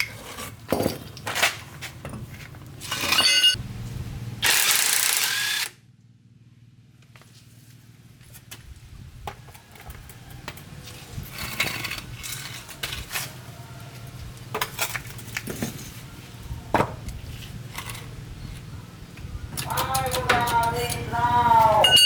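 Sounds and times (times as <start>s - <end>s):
metal tools clinking and knocking: 2.9s - 3.6s, 19.5s - 22.0s.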